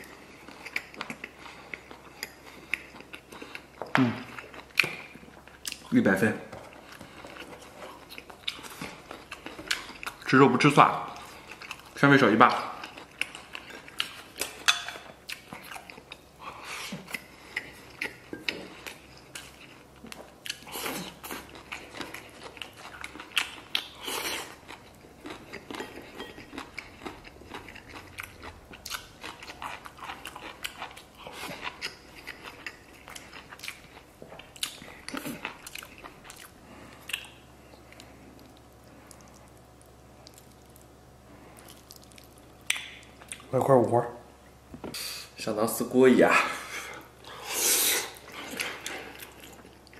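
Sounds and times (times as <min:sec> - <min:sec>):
person biting and chewing: 0:15.3 - 0:39.6.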